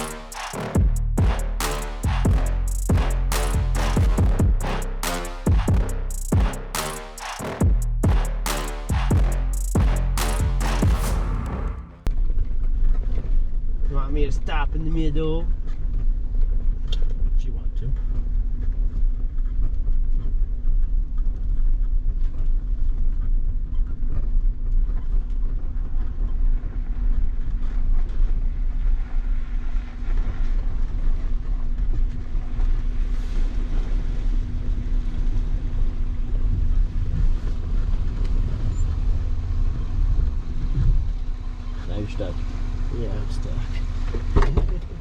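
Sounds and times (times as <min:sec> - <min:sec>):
vehicle engine rumble: 0:30.8 - 0:45.0.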